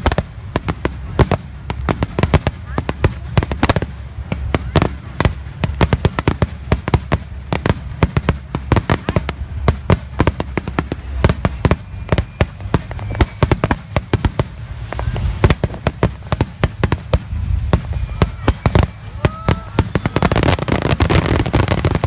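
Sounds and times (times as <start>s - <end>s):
fireworks bangs and crackles: 0.0s - 22.0s
low rumble: 13.8s - 19.8s.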